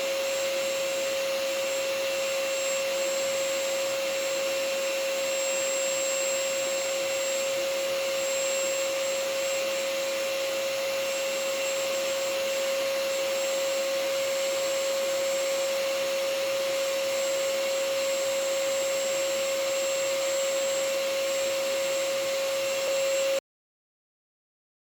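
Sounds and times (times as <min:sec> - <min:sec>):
vacuum cleaner running: 0:00.0 - 0:23.4.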